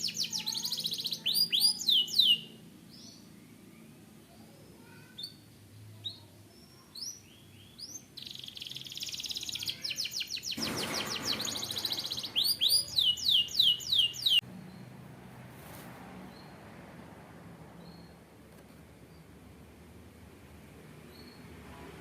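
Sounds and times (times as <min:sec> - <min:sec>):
canary singing: 0:00.0 - 0:03.3, 0:04.8 - 0:14.9.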